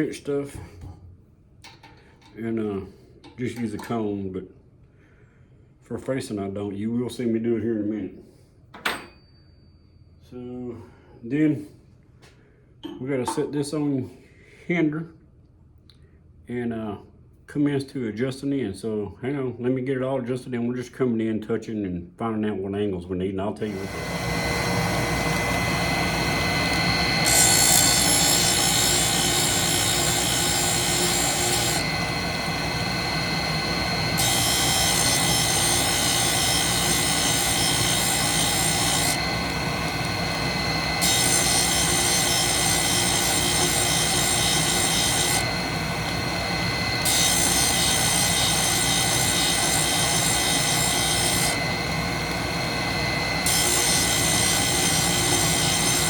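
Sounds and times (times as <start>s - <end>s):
grinder motor whining: 23.6s - 56.0s
grinding wheel hissing on metal: 23.7s - 56.0s.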